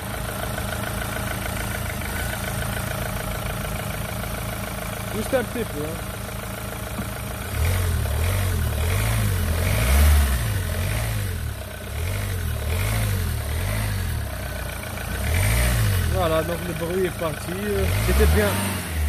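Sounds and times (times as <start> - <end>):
diesel engine revving: 6.8 - 19.0.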